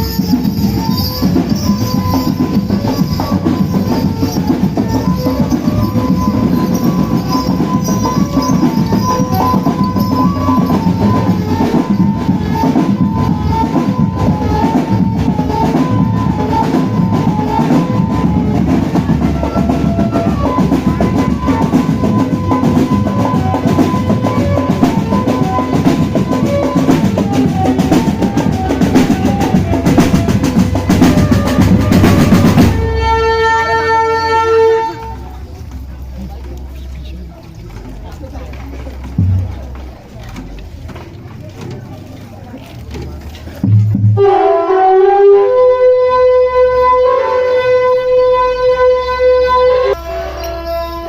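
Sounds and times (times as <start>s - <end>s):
high melodic notes: 0.0s - 36.8s
marching drum band playing: 0.0s - 44.5s.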